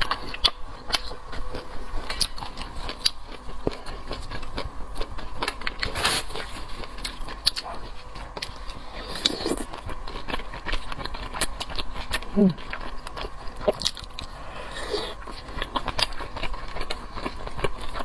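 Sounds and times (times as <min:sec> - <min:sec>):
person chewing food: 0:00.0 - 0:18.0.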